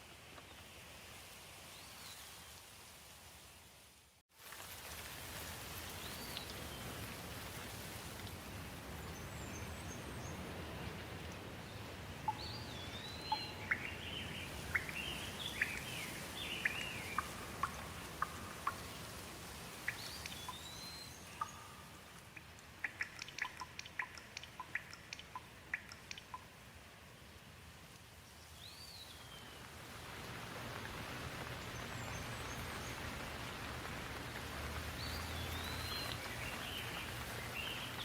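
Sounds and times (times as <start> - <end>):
steady rain: 0.0 - 38.0
water dripping: 4.4 - 9.2, 12.2 - 26.6, 29.4 - 38.0.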